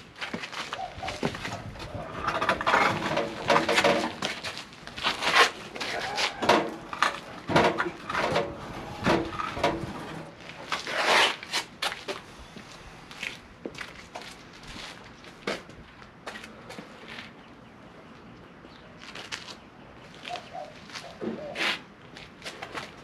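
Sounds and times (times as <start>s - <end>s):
metal knocks and clanks: 1.2s - 4.5s, 5.9s - 10.4s
indistinct voices: 5.7s - 10.2s.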